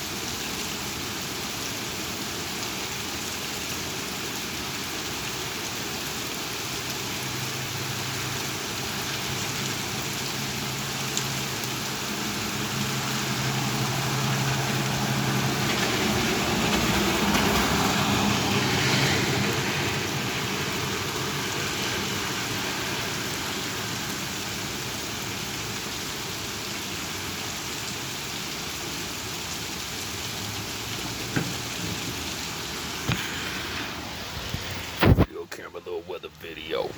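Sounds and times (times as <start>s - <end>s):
rain falling: 0.0s - 36.9s.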